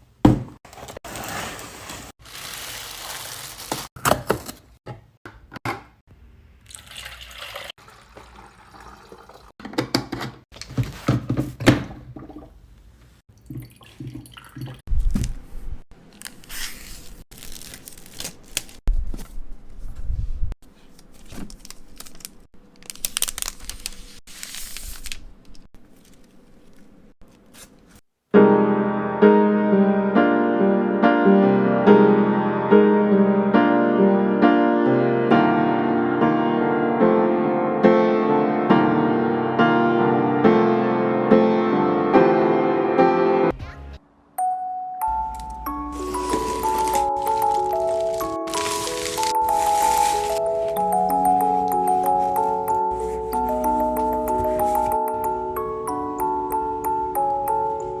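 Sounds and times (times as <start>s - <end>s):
liquid sounds: 13.3s - 14.8s
piano tune: 28.3s - 43.6s, 44.4s - 58.0s.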